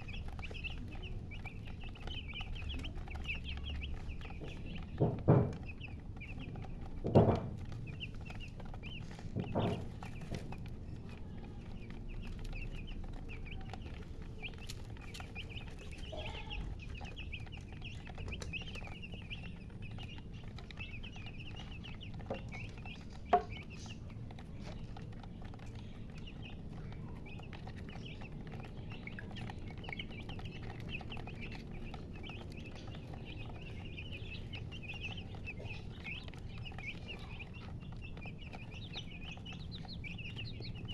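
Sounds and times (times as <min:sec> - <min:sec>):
chicks peeping: 0:00.0 - 0:40.9
knocks: 0:04.4 - 0:05.9, 0:07.0 - 0:07.7, 0:09.3 - 0:10.4.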